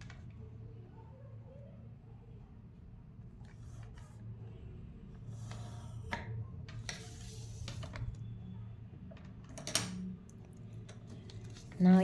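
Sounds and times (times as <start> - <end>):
pencil scratching on paper: 5.3 - 6.1.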